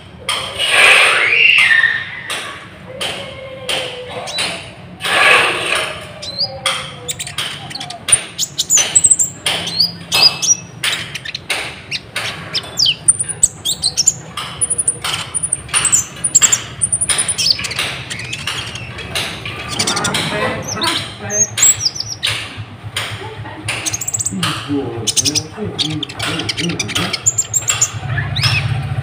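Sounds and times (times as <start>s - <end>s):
high bird chirps: 6.2s - 22.7s, 23.7s - 28.8s
sharp clicks and taps: 6.7s - 28.0s.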